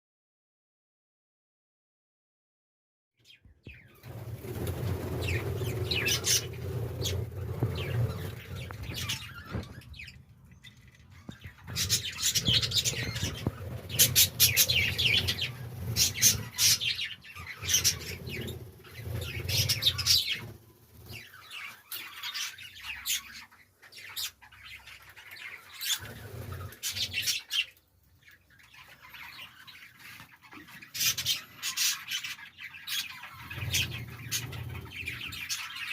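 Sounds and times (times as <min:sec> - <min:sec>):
budgerigars chirping: 0:04.9 - 0:35.9.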